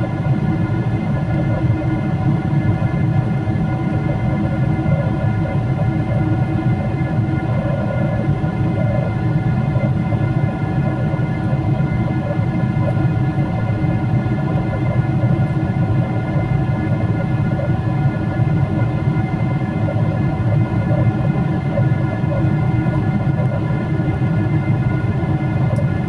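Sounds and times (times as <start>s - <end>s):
airplane cabin drone: 0.0s - 26.0s.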